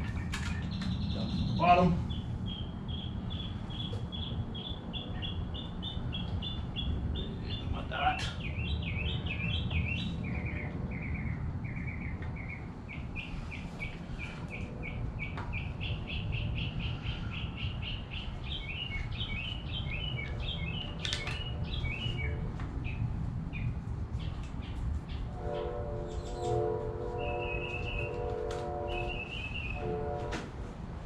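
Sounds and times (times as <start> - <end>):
small bird chirping: 0.0 - 14.0
steady low rumble: 0.0 - 30.2.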